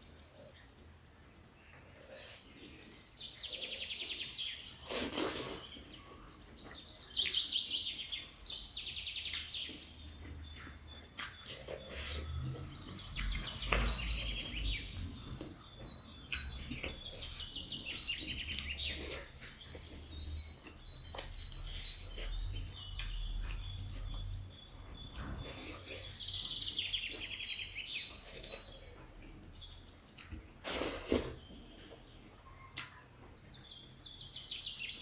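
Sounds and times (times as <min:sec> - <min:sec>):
birds chirping and trilling: 0:00.0 - 0:35.0
chewing: 0:00.5 - 0:07.5, 0:09.2 - 0:33.6.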